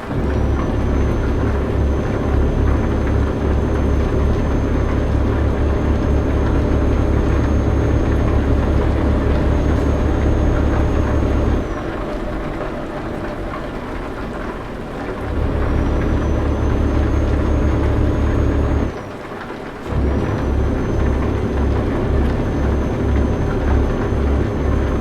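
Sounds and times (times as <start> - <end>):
truck engine droning: 0.0 - 25.0.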